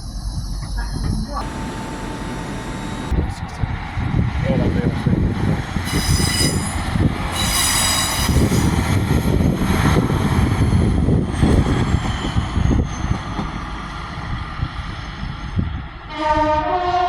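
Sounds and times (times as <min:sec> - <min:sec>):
train wheels squealing: 0:00.0 - 0:01.4, 0:05.8 - 0:13.7
train rumbling: 0:00.0 - 0:17.0
high falling whine: 0:01.4 - 0:03.5.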